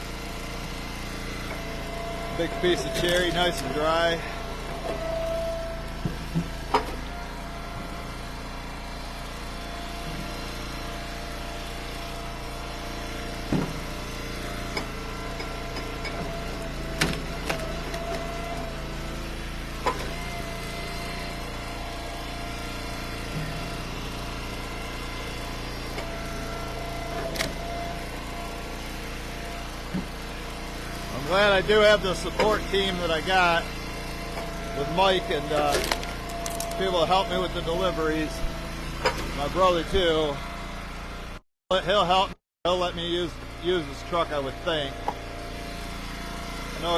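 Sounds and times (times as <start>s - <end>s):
wood splitter engine running: 0.0s - 46.9s.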